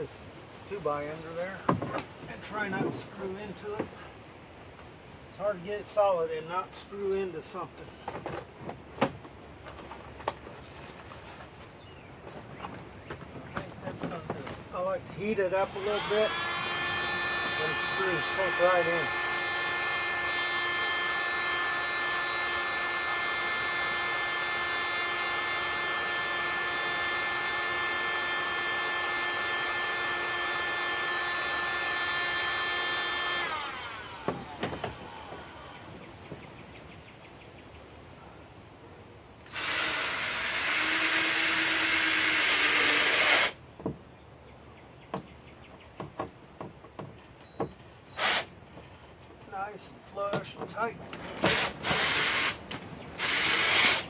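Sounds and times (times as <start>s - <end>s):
power drill driving screw: 15.5s - 35.8s, 39.4s - 43.6s, 47.4s - 49.1s, 51.4s - 54.0s.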